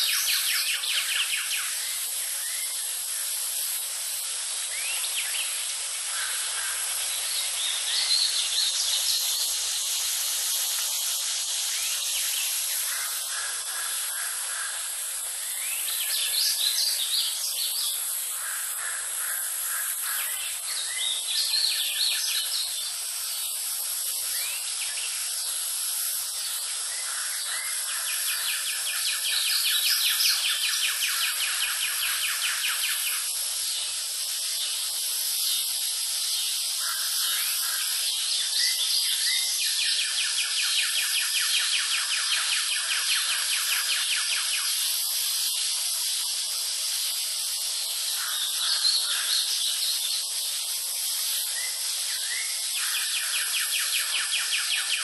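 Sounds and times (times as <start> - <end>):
high background hiss: 0.0 - 55.0
wild birds calling: 12.8 - 15.3.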